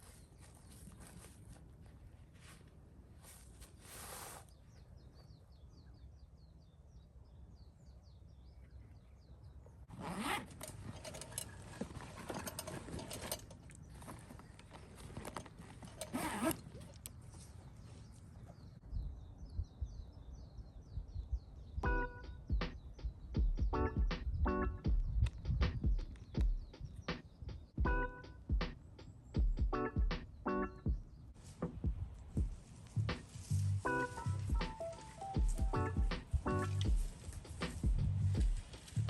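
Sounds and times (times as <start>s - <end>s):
zipper being pulled: 3.8s - 4.5s, 9.9s - 17.1s.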